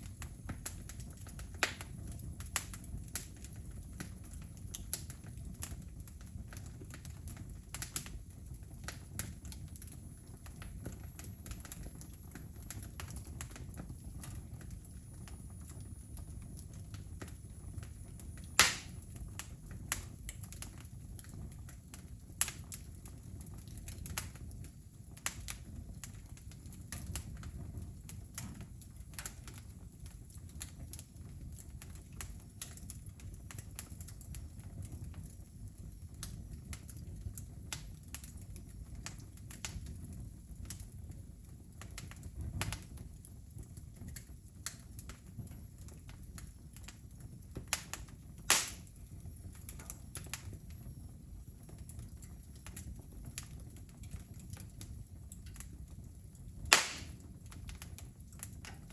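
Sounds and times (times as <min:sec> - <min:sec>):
wood fire crackling: 0:00.0 - 0:58.9
loud fire pop: 0:18.6 - 0:19.0, 0:48.5 - 0:48.9, 0:56.7 - 0:57.4.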